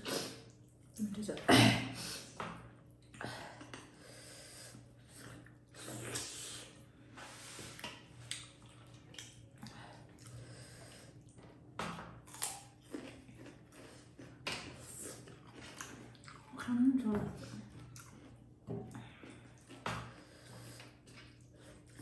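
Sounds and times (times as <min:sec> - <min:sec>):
sniffing and nasal breathing: 0:04.0 - 0:04.8
chewing and mouth noises: 0:07.7 - 0:16.8, 0:17.4 - 0:22.0.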